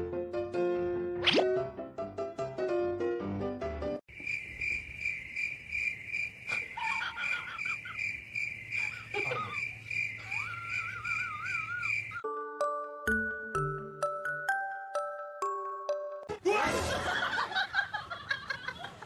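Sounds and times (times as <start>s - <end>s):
piano-like music: 0.0s - 4.0s, 12.2s - 16.3s
steady high pulsing chirping: 4.4s - 12.2s
short wavering calls: 8.7s - 12.2s.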